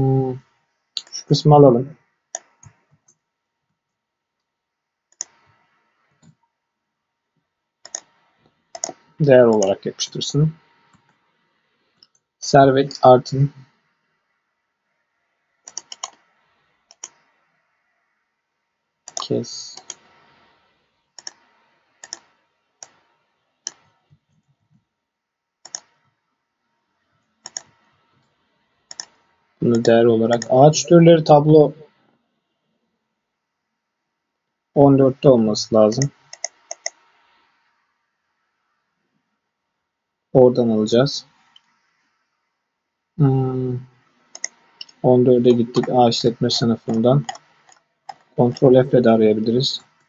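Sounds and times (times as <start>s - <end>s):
computer mouse and keyboard clicks: 2.3s - 3.2s, 5.1s - 6.4s, 7.8s - 9.8s, 15.6s - 16.3s, 16.9s - 17.3s, 19.1s - 20.3s, 21.2s - 24.8s, 25.6s - 26.1s, 27.2s - 28.3s, 28.9s - 30.6s, 36.0s - 37.0s, 44.2s - 45.0s, 45.6s - 48.6s.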